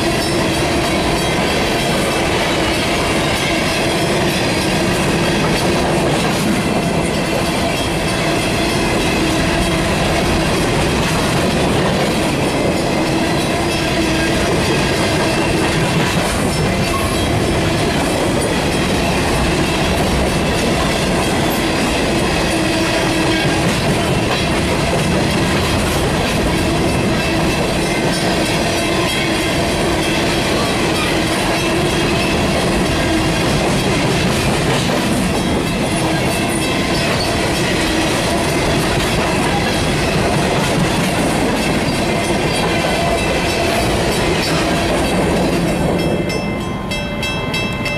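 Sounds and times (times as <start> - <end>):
train wheels rolling on rails: 0.0 - 47.9.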